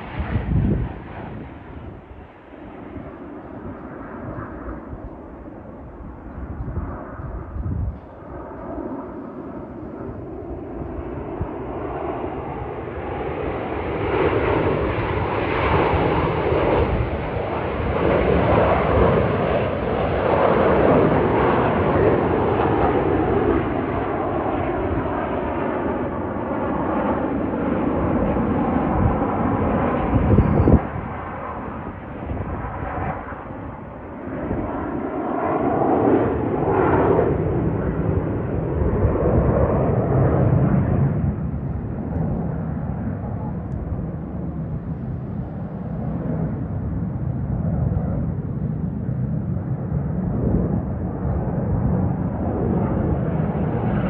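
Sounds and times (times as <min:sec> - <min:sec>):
jets flying past: 0:00.0 - 0:54.0.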